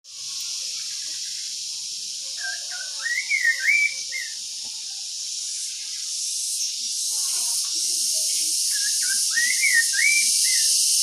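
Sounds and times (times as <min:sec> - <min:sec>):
steady high hiss: 0:00.1 - 0:11.0
songbird whistled warble: 0:02.3 - 0:04.4, 0:08.6 - 0:11.0.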